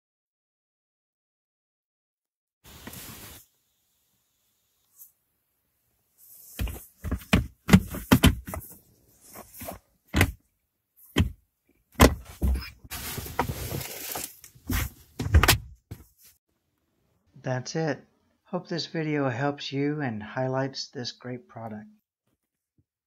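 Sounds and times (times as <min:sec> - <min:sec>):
scraping or rustling: 0:12.3 - 0:15.2.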